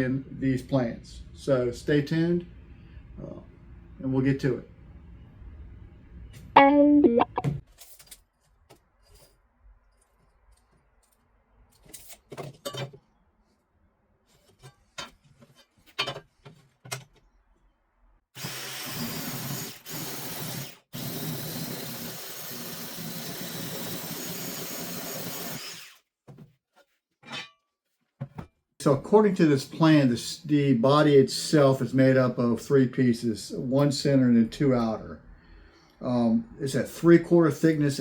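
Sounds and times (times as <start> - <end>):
power tool cutting lumber: 18.4 - 26.0.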